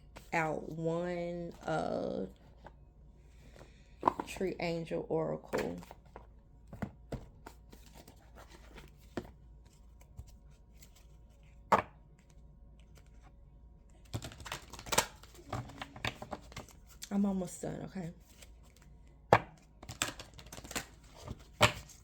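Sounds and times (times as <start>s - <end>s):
cards being shuffled: 14.0s - 17.1s, 19.8s - 22.0s.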